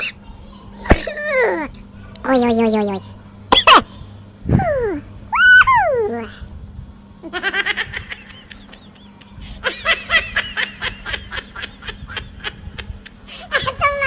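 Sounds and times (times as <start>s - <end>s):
baby giggling: 4.5s - 6.3s.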